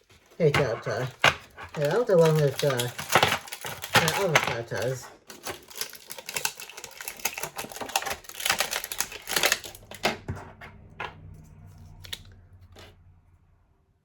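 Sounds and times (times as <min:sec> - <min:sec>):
plastic packaging clicking and rustling: 0:00.0 - 0:10.4.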